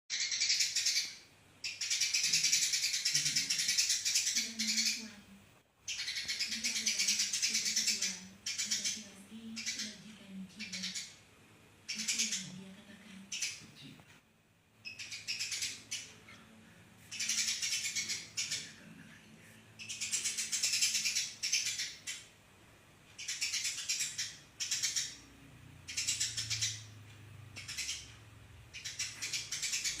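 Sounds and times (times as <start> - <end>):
sparrow chirping in bursts: 0.1 - 5.2, 5.8 - 10.0, 10.6 - 11.2, 11.8 - 12.6, 13.3 - 13.7, 14.8 - 16.2, 17.1 - 18.7, 19.8 - 22.3, 23.2 - 27.0, 27.6 - 30.0.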